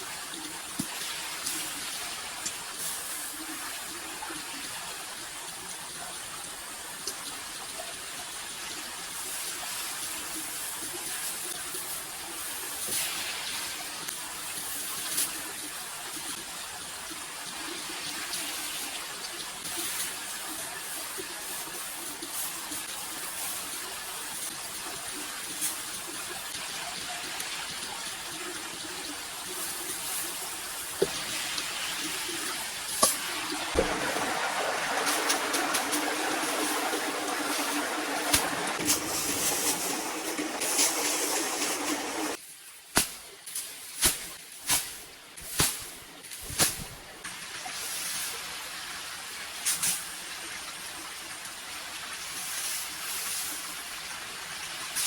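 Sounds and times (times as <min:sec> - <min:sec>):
water trickling: 0:25.1 - 0:42.4.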